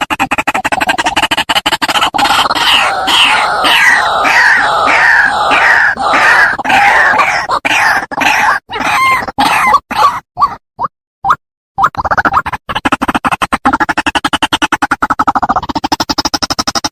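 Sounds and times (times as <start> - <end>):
bird harsh falling calls: 2.2 - 9.8.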